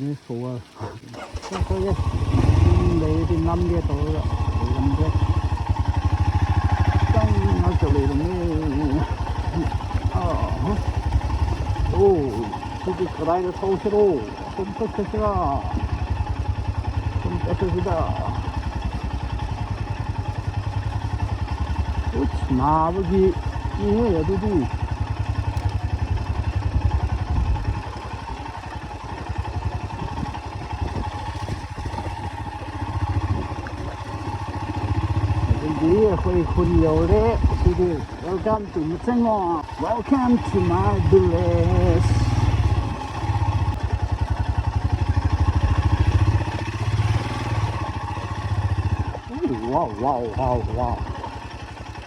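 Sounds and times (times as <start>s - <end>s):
motorcycle engine running: 0.6s - 52.0s.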